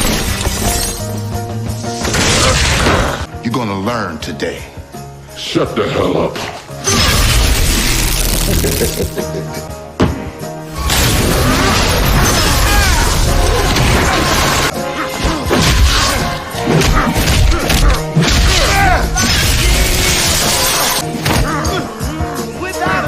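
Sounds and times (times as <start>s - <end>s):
dramatic music: 6.4s - 23.0s
fight hits and crashes: 10.0s - 21.5s.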